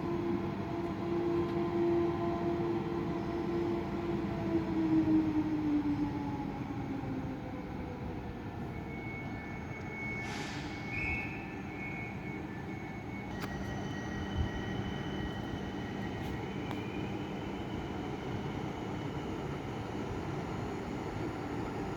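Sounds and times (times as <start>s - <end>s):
high squealing wheels: 8.7s - 17.7s.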